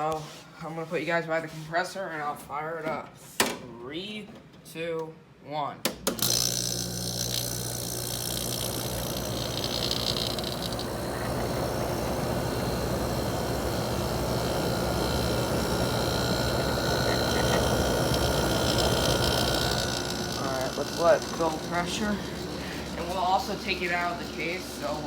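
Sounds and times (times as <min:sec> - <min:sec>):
air conditioner compressor humming: 0:00.0 - 0:25.0
fan rushing: 0:08.7 - 0:25.0.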